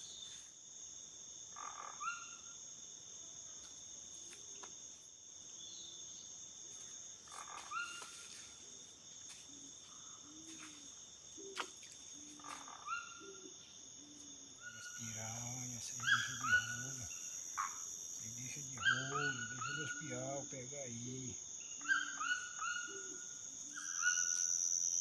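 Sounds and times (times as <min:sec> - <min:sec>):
crickets trilling: 0:00.0 - 0:25.0
short low frog calls: 0:12.4 - 0:20.2.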